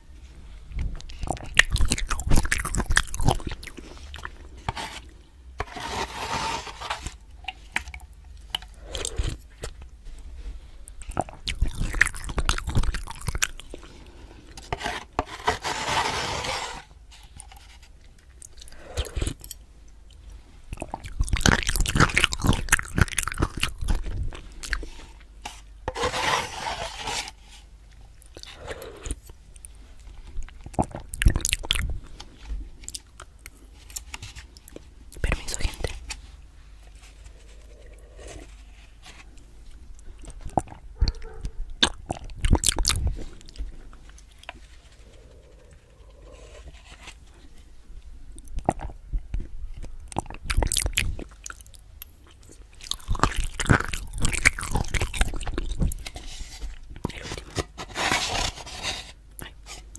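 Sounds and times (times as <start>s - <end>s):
chewing and mouth sounds: 0.6s - 4.8s, 10.8s - 14.6s, 18.0s - 25.3s, 27.9s - 36.2s, 37.0s - 47.1s, 48.3s - 57.6s.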